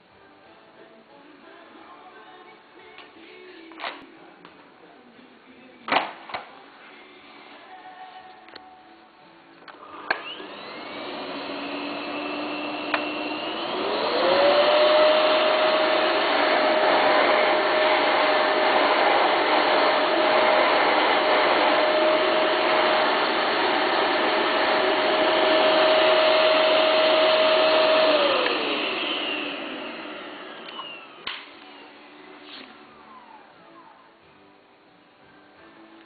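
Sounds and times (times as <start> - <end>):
vacuum cleaner motor whining: 9.8 - 33.8
vacuum cleaner switch click: 12.9 - 13.1, 28.4 - 28.6.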